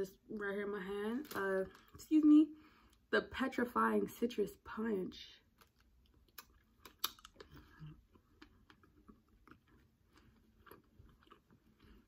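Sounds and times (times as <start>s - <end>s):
faint candy chewing: 5.4s - 12.0s.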